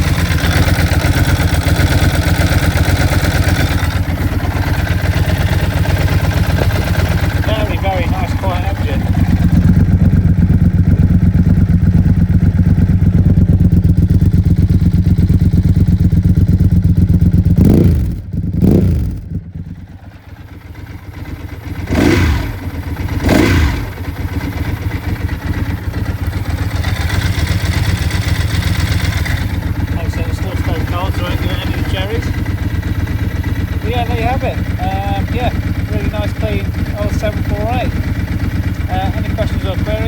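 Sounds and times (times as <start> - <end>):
motorcycle engine idling and revving: 0.0 - 40.0.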